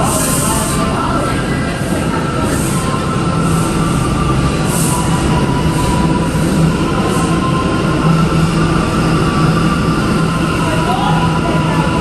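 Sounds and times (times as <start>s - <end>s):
subway train rumble: 0.0s - 12.0s.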